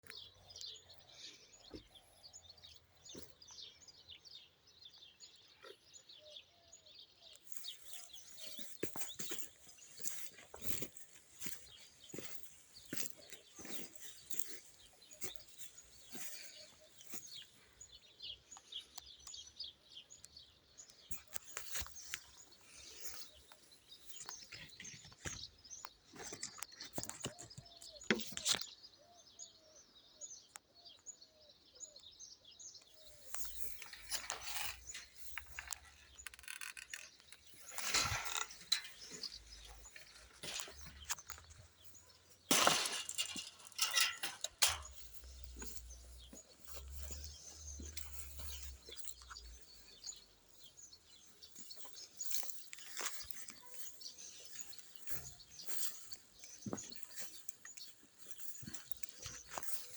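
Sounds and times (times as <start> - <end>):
small birds chirping: 0.0 - 59.9
rustles: 33.0 - 59.9.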